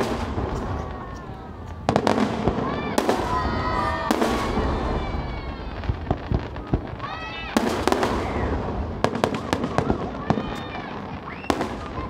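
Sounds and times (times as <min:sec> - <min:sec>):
crackling firework pops: 0:00.0 - 0:12.0
firework burst: 0:00.0 - 0:12.0.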